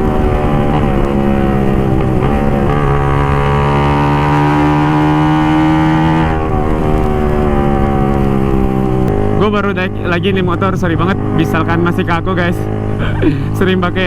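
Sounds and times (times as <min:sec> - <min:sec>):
low wind rumble: 0:00.0 - 0:14.0
motorcycle engine running: 0:00.0 - 0:14.0.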